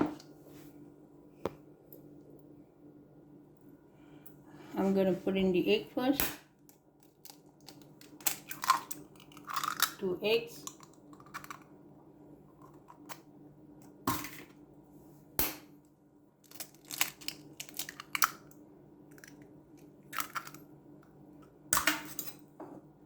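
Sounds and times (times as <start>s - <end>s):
faint steady hum: 0.0s - 23.0s
eggs cracking against a bowl: 6.2s - 11.9s, 16.4s - 22.0s
bowls and utensils clinking: 21.8s - 22.5s.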